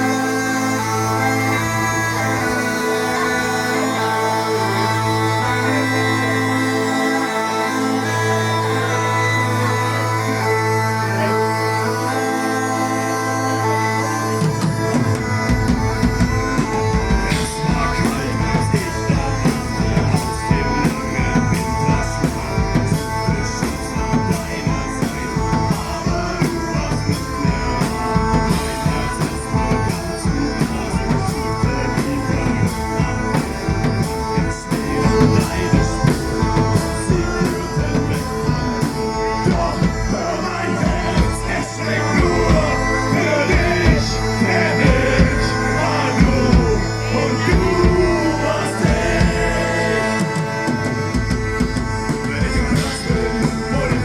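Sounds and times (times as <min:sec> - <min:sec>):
live rock band playing: 0:00.0 - 0:54.0
drums beating: 0:14.3 - 0:54.0.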